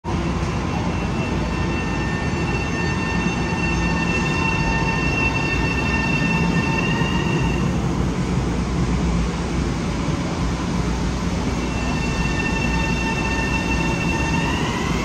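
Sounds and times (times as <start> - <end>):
electric train rumbling: 0.0 - 15.0
high-pitched squeal: 0.7 - 7.8, 11.6 - 15.0.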